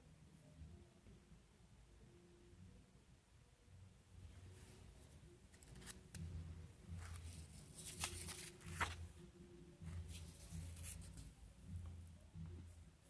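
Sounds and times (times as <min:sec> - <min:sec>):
paper rustling: 0:06.9 - 0:09.0.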